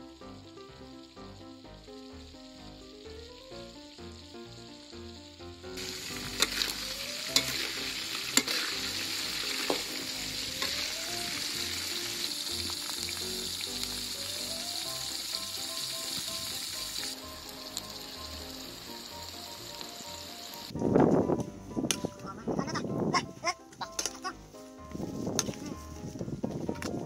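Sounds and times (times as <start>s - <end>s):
food sizzling in oil: 0.0s - 20.8s.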